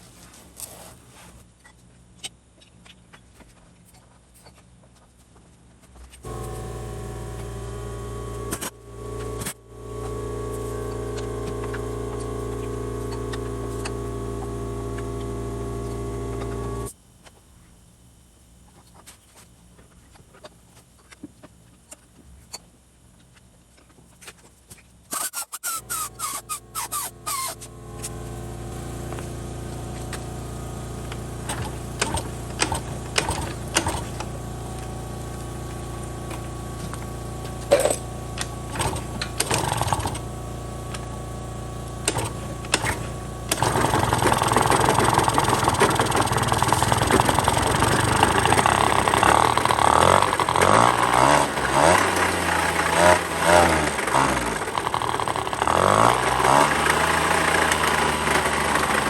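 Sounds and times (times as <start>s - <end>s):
scooter engine idling and revving: 6.2s - 16.9s, 25.8s - 59.0s
engine clicks and knocks: 31.4s - 34.3s, 36.3s - 40.3s, 42.0s - 59.0s.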